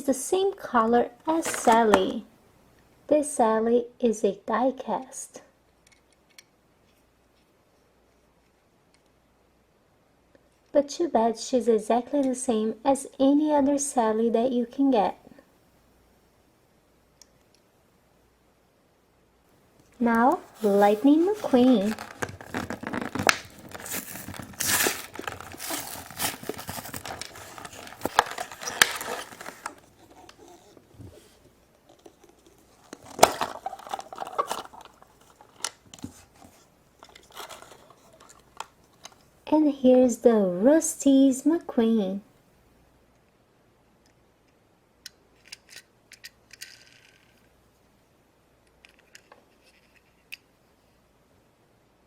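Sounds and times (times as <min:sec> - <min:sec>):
plastic wrapping crinkling and tearing: 0:20.2 - 0:31.3, 0:31.9 - 0:39.2.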